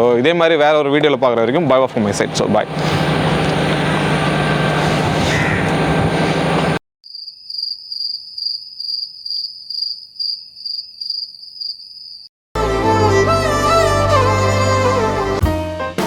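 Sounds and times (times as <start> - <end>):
running noise with low hum: 1.5 - 6.8
cricket chirping: 7.0 - 12.3.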